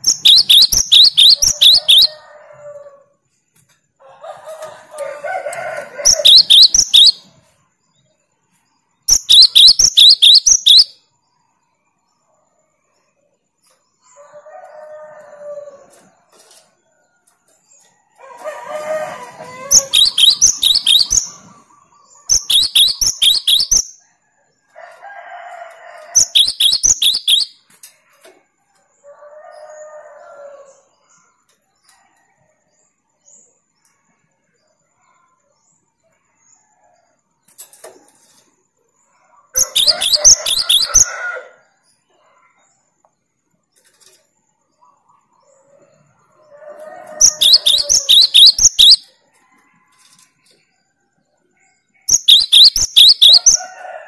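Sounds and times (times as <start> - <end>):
bird singing shrill rapid notes: 0.0 - 2.2, 6.0 - 7.3, 9.1 - 11.0, 19.3 - 21.6, 22.2 - 24.0, 26.2 - 27.6, 39.6 - 41.1, 47.2 - 49.1, 52.1 - 53.6.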